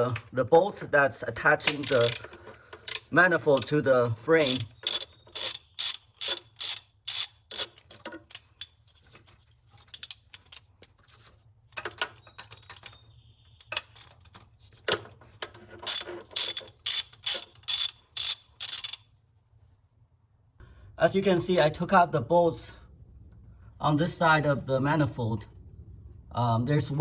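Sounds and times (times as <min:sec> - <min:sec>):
ratchet wrench clicking: 0:01.7 - 0:02.3, 0:02.9 - 0:03.7, 0:04.4 - 0:08.7, 0:15.8 - 0:19.1.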